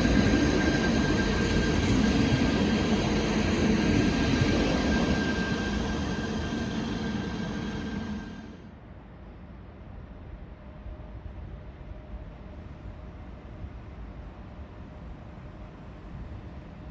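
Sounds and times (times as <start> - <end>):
thin steady whine: 0.0 - 8.7
train rumble: 0.0 - 8.7.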